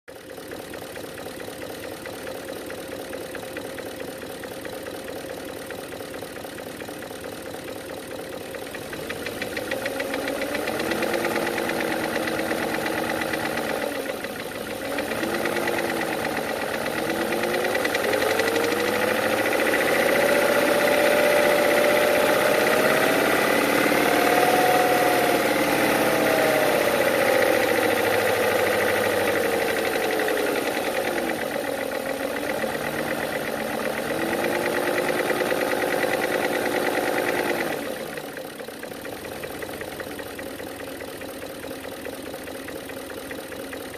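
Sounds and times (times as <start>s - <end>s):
rapid engine knock: 0.1s - 43.9s
car engine revving: 8.7s - 38.3s.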